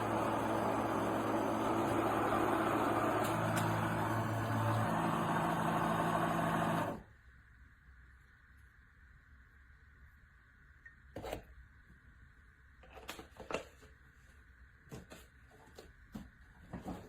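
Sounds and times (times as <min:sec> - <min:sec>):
coffee maker motor humming: 0:00.0 - 0:07.1.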